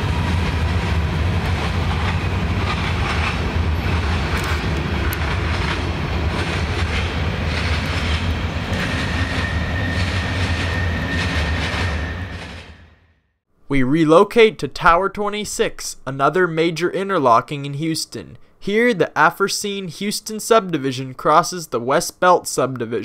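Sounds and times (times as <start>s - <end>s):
freight wheels rumbling on rail: 0.0s - 13.0s
wheels clicking: 1.4s - 11.8s
high wheel squeal: 7.6s - 13.0s.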